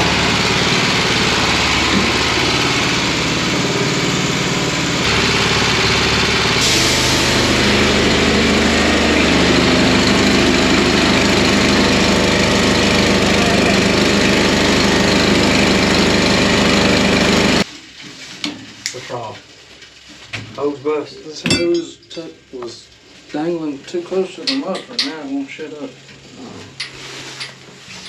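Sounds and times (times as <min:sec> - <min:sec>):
engine running: 0:00.0 - 0:17.7
loud even hiss: 0:05.1 - 0:09.2.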